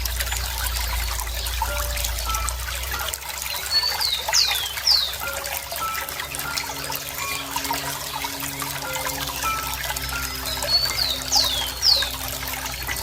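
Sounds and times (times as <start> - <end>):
water trickling and gurgling: 0.0 - 13.0
bird whistling: 9.4 - 12.3.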